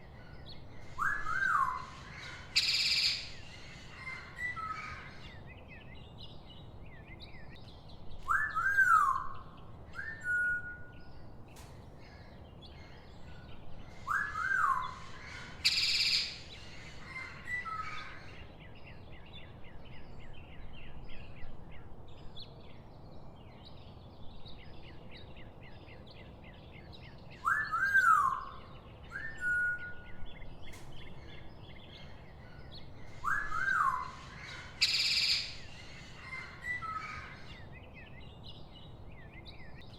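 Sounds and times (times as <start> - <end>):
birds whistling: 0.0 - 6.0, 8.2 - 11.2, 13.9 - 18.5, 26.9 - 39.9.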